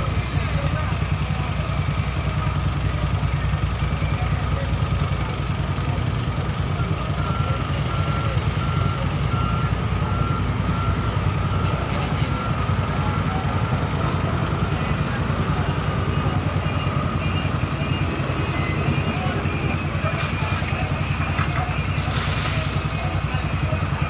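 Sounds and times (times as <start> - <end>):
diesel vehicle rumbling: 0.0 - 24.0
reversing alarm beeping: 6.7 - 24.0.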